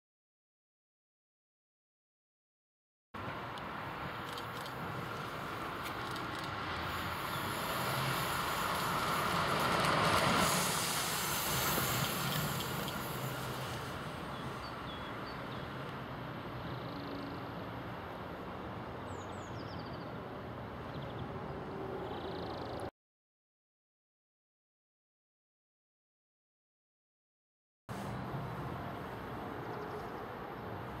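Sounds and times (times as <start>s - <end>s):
electric train passing: 3.2s - 19.0s, 27.9s - 31.0s.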